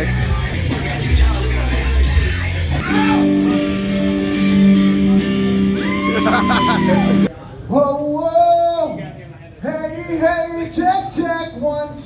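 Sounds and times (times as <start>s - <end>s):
loud live rock music: 0.0s - 7.3s.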